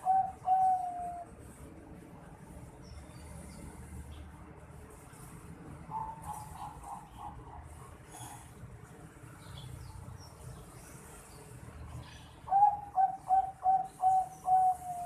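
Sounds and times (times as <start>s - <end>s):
dove cooing: 0.0s - 1.3s, 12.5s - 15.0s.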